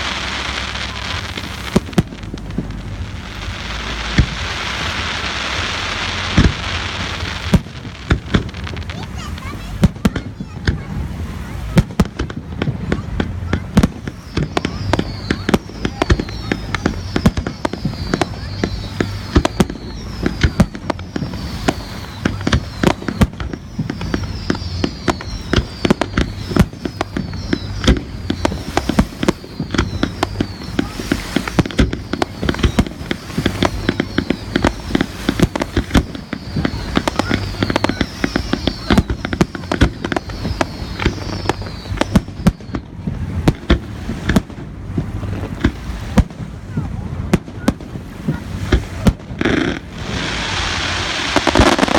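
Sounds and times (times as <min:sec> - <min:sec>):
fireworks bangs: 0:00.0 - 0:51.9
falling high whistles: 0:13.5 - 0:43.0, 0:49.5 - 0:51.9.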